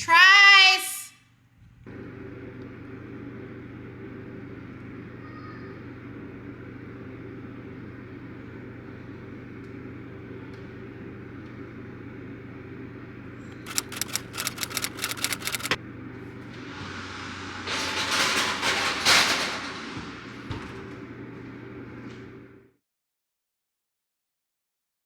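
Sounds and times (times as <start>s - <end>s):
machine hum: 13.5s - 16.0s
sharp clicks or clatter: 13.6s - 15.8s.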